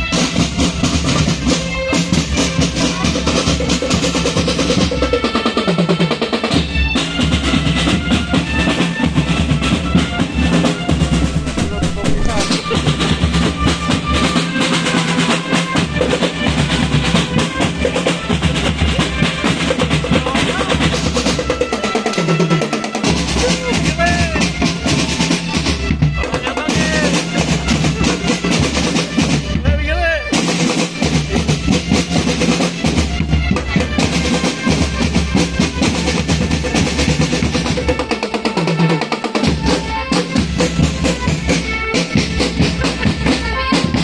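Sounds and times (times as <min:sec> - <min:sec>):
snare drum rolls: 0:00.0 - 0:44.0
bass drum: 0:09.5 - 0:21.5.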